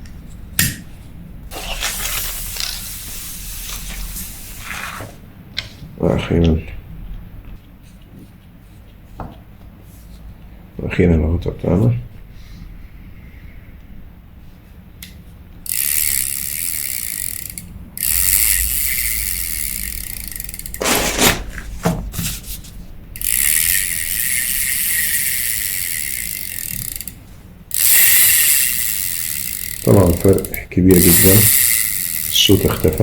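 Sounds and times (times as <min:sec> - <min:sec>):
fishing reel whirring: 0:01.5 - 0:04.8, 0:15.6 - 0:21.4, 0:23.2 - 0:33.0.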